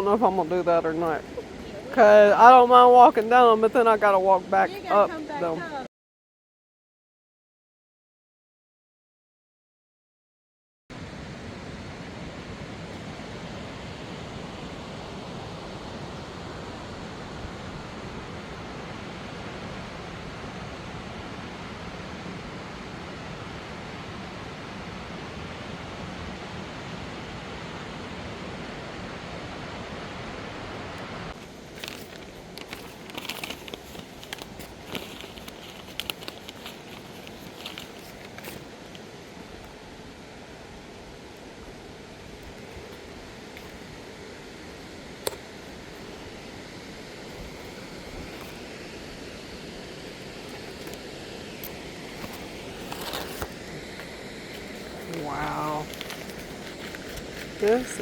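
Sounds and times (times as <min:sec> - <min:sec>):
waterfall rushing: 0:00.0 - 0:05.8, 0:11.0 - 0:58.0
crackling footsteps on trail: 0:31.3 - 0:39.8, 0:47.3 - 0:58.0.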